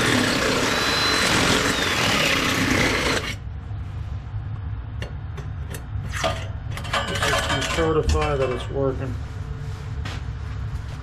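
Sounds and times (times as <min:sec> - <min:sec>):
power tool motor whining: 0:00.0 - 0:03.4
low hum: 0:03.2 - 0:07.5.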